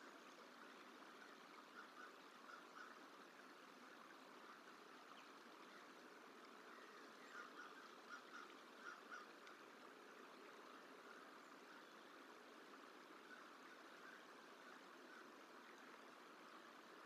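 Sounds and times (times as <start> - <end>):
steady background hiss: 0.0 - 17.0
crow cawing faintly: 6.8 - 9.6.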